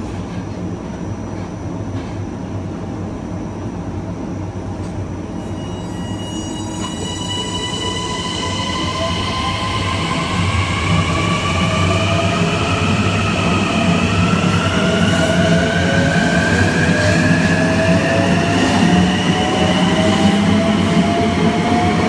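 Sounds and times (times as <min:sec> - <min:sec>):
train wheels rumbling on rails: 0:06.7 - 0:22.0.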